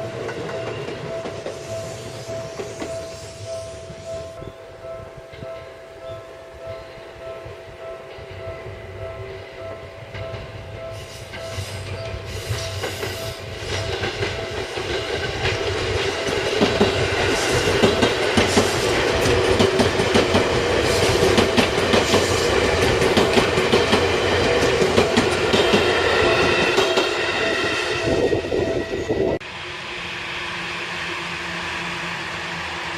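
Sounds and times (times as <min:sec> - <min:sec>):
electric train passing: 0:00.0 - 0:32.9
train wheels clicking over rail joints: 0:09.3 - 0:27.4.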